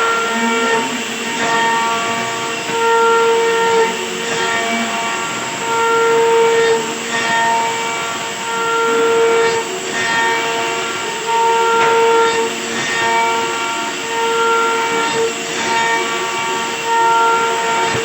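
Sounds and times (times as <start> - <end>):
router spindle whining cutting wood: 0.0 - 18.0.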